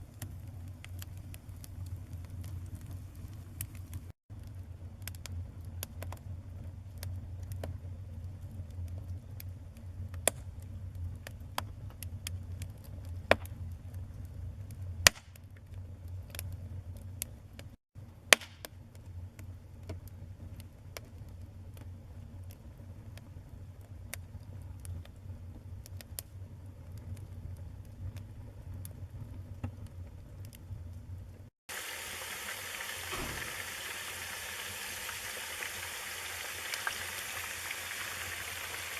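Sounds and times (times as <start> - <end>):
wood fire crackling and popping: 0.0 - 17.7, 18.3 - 30.6, 31.7 - 38.9
steady hiss: 31.7 - 38.9.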